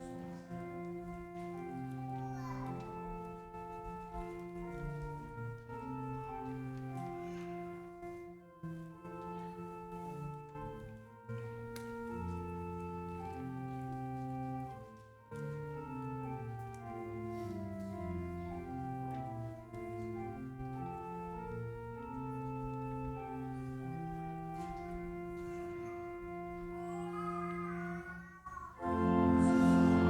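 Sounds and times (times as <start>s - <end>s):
church organ playing chords: 0.0s - 28.2s, 28.8s - 30.0s.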